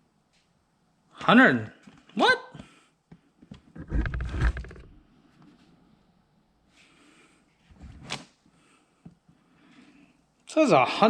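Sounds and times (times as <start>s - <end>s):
rustling and knocking of box: 3.5s - 5.0s.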